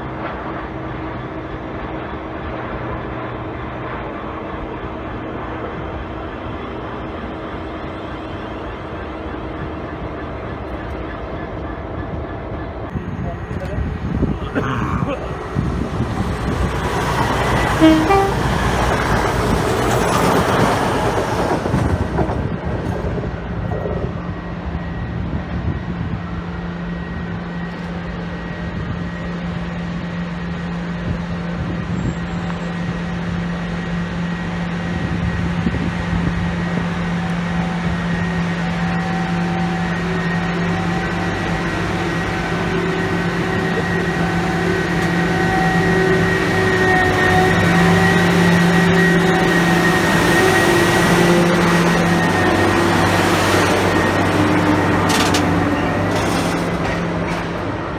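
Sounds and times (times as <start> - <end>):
train engine droning hum: 0.0 - 57.9
train rushing past: 11.1 - 25.3, 33.9 - 57.9.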